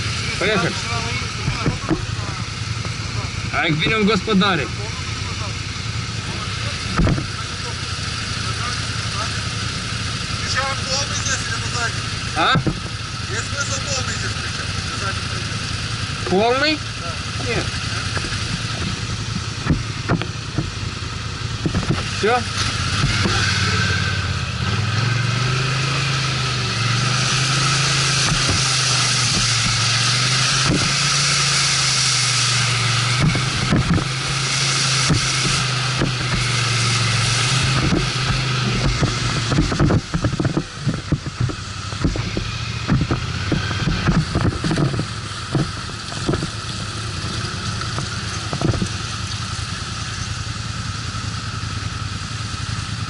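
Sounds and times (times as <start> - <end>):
atv engine running: 0.0 - 53.0
knocks and rattles: 1.4 - 3.0, 6.9 - 7.7, 12.4 - 13.0, 17.4 - 21.0, 21.6 - 23.6, 27.6 - 31.6, 33.0 - 50.3.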